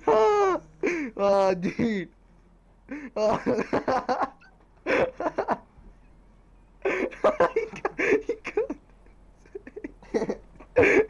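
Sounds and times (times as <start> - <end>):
person laughing: 0.0 - 2.0, 2.9 - 5.6, 6.8 - 11.0.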